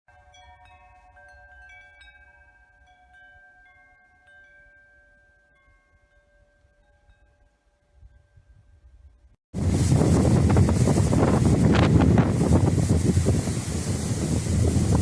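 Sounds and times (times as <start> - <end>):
wind chimes ringing: 0.1 - 9.4
wind rumble on microphone: 8.0 - 15.0.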